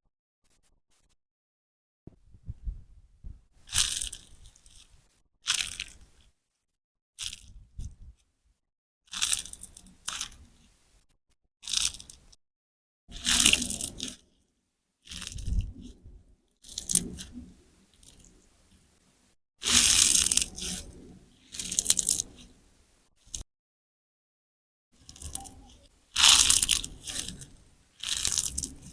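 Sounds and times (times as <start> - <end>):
slime sponge squelching: 16.7 - 18.4, 19.6 - 22.6, 26.2 - 28.9.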